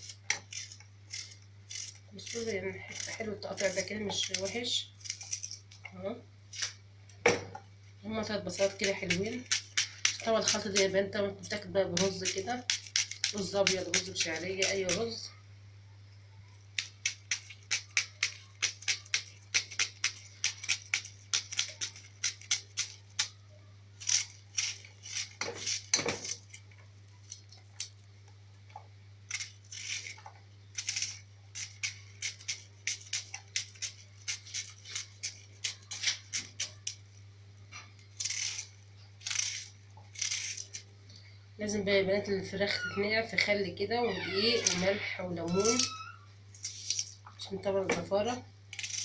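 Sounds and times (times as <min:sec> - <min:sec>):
knife chopping onions: 0:00.0 - 0:05.4, 0:08.2 - 0:11.0, 0:11.6 - 0:15.1, 0:16.8 - 0:23.4, 0:29.3 - 0:37.0.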